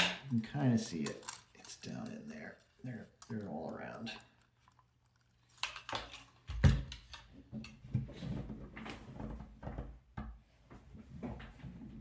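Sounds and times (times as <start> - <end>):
handling clicks and knocks: 0.0 - 2.2.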